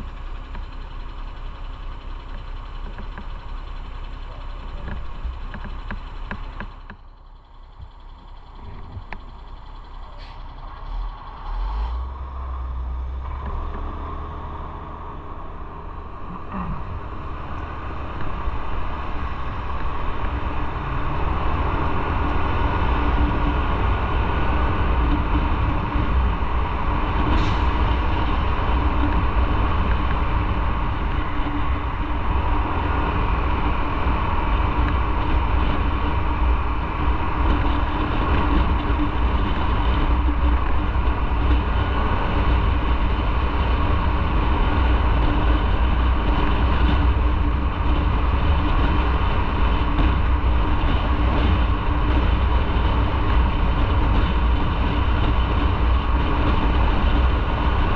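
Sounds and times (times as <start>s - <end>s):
motorcycle engine rumble: 0.0s - 57.9s
wind noise: 16.0s - 57.9s.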